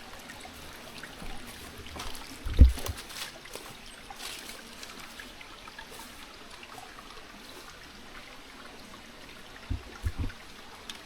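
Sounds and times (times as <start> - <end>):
stream trickling over rocks: 0.0 - 11.0
loud low thump: 9.7 - 10.4.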